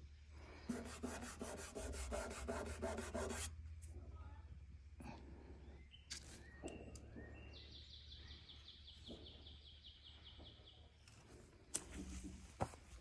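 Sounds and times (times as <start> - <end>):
low steady hum: 0.0 - 13.0
bird song trill: 5.6 - 11.2.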